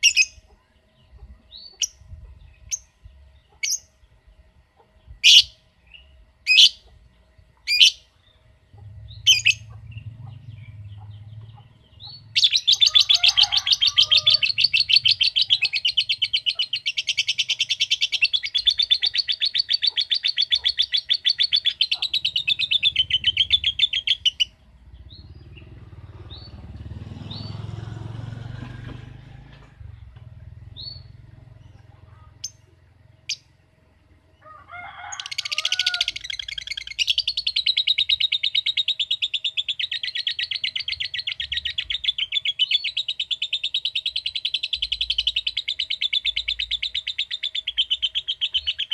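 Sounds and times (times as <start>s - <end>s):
lovebird chirping and trilling: 0.0s - 4.0s, 5.1s - 6.9s, 7.6s - 8.1s, 9.0s - 27.6s, 30.6s - 31.8s, 32.4s - 33.5s, 35.1s - 48.9s
low background rumble: 0.0s - 34.4s.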